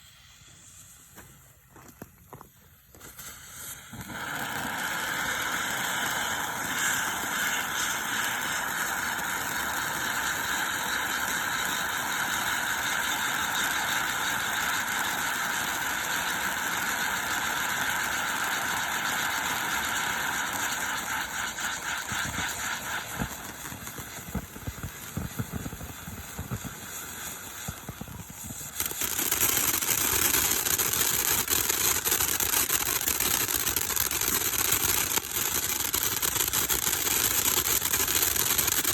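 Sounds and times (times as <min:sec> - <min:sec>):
firework crackling: 0:00.0 - 0:38.9
firework spraying sparks hissing: 0:00.0 - 0:38.9.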